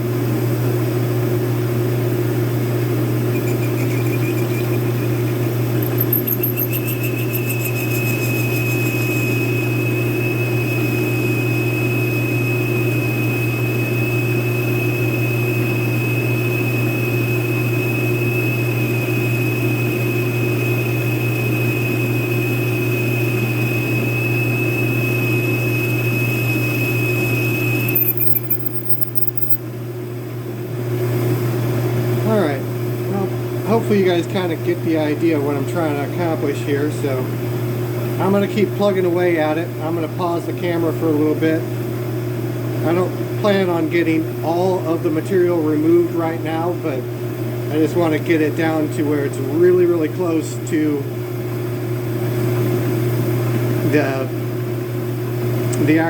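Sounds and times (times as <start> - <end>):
metal lathe humming: 2.6 - 14.8
high cutting squeal: 2.8 - 29.6.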